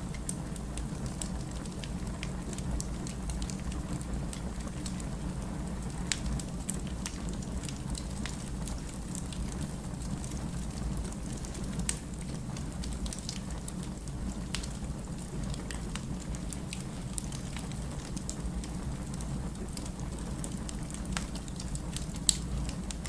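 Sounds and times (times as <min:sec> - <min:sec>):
firewood crackling and popping: 0:00.0 - 0:23.0
low fire rumble: 0:00.0 - 0:23.0.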